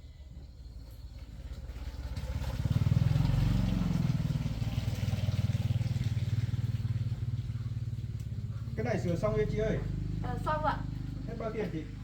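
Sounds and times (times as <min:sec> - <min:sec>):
small boat engine running: 0:00.1 - 0:12.0.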